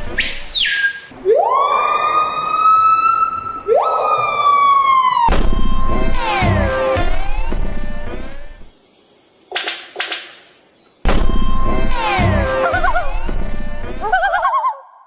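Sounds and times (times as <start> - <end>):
siren-like wails: 1.1 - 8.7, 11.2 - 14.6
music with a bass line: 11.2 - 14.0.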